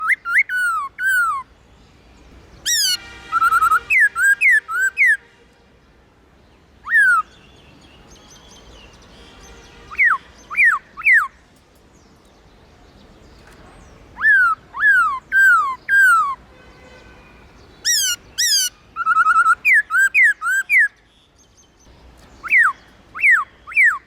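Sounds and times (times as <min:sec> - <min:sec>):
bird singing whistled phrases: 0:00.0 - 0:01.5, 0:06.8 - 0:07.4, 0:14.2 - 0:16.4, 0:17.9 - 0:21.0, 0:22.3 - 0:24.0.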